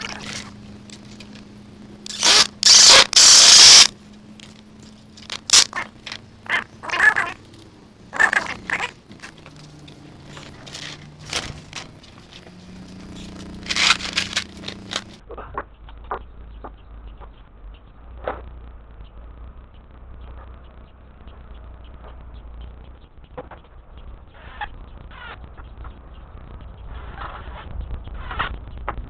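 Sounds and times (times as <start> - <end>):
faint steady hum: 0.0 - 15.2
loud scraping: 2.0 - 4.0, 5.2 - 5.9, 8.2 - 15.2.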